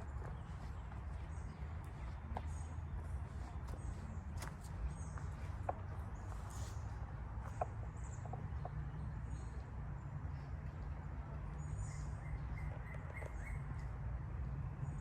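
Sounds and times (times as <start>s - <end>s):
footsteps on dirt trail: 0.0s - 7.6s.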